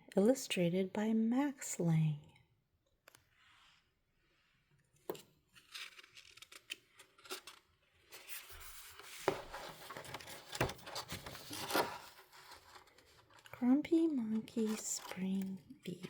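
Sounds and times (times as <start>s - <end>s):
book pages turning: 5.0s - 16.0s
paper rustling and sliding: 5.6s - 13.5s.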